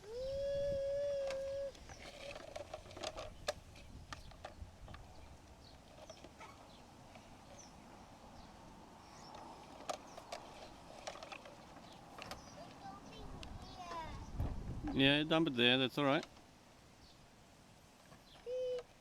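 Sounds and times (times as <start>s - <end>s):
plastic toy parts clicking in dirt: 1.2s - 7.7s, 9.2s - 12.8s.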